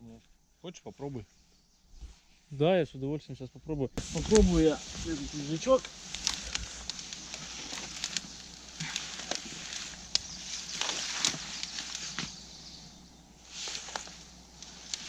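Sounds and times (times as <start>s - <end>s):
boughs and sticks rustling: 4.0s - 15.0s
twigs cracking: 4.0s - 15.0s.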